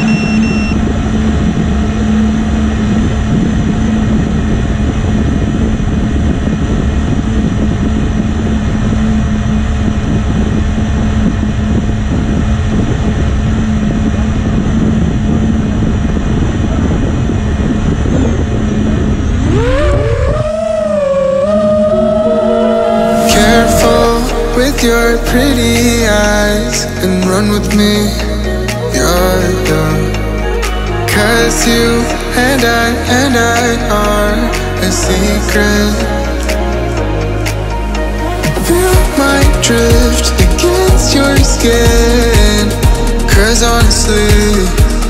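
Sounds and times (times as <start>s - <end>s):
drone motors humming: 0.0s - 45.0s
low rumbling rush: 0.0s - 45.0s
rising sweep: 18.6s - 45.0s
music: 23.0s - 45.0s.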